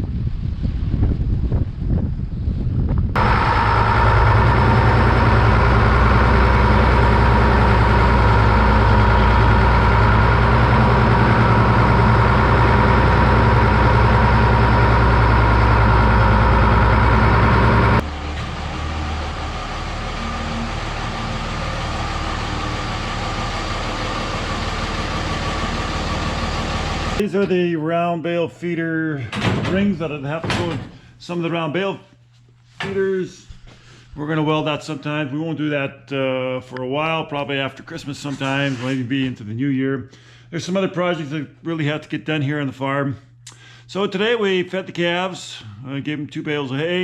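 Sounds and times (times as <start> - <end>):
wind on microphone: 0.0 - 3.2
vehicle engine running: 3.2 - 27.2.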